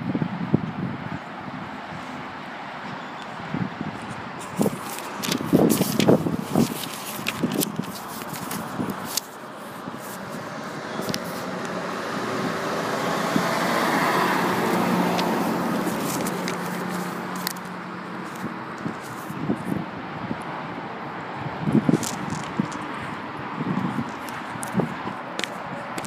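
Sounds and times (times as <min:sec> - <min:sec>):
car passing on wet road: 0:08.6 - 0:19.1.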